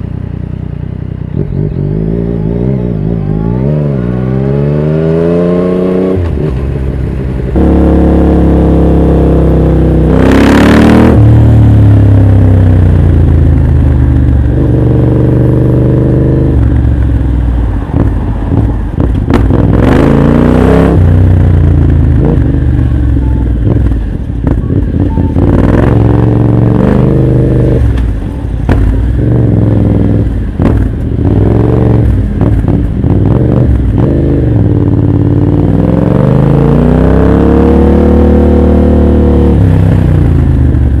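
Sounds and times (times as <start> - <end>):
motorcycle engine revving: 0.0 - 41.0
exhaust pops: 17.9 - 19.8, 27.8 - 29.5, 30.1 - 34.0.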